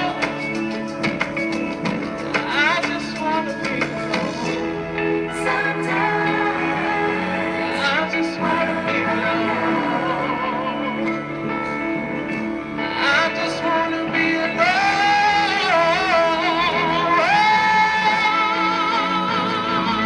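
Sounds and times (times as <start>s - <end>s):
sparse backing music: 0.0s - 20.0s
man singing slow song: 2.3s - 11.2s, 12.8s - 20.0s.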